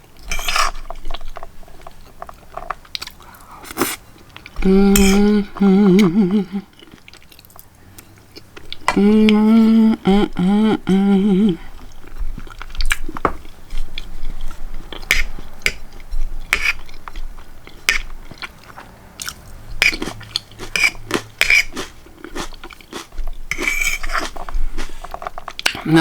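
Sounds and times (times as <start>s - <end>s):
chewing peas: 0.0s - 26.0s
wet mouth clicks: 19.2s - 22.6s.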